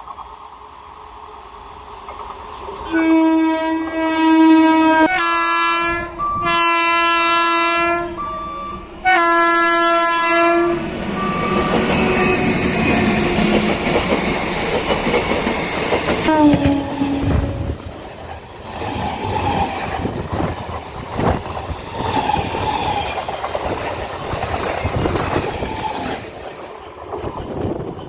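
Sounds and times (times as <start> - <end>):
train running past: 0.0 - 28.0
train horn blasts: 2.8 - 13.0, 16.2 - 18.0.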